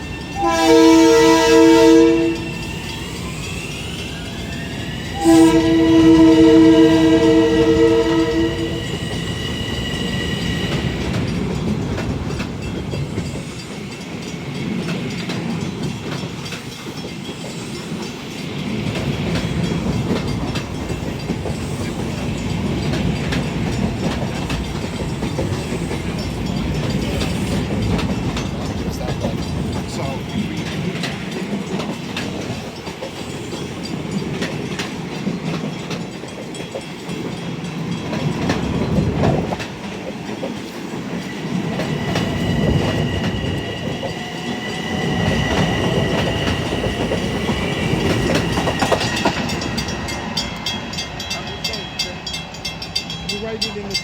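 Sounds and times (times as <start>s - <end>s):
train cars rumbling on rails: 0.0s - 54.0s
train horn blast: 0.4s - 2.8s, 5.2s - 9.3s.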